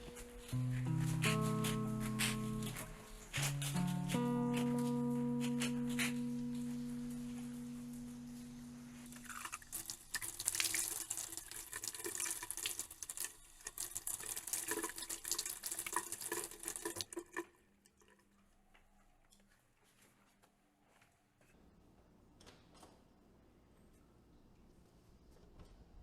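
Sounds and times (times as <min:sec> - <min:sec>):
objects rattling in plastic bottles: 0:09.1 - 0:17.6.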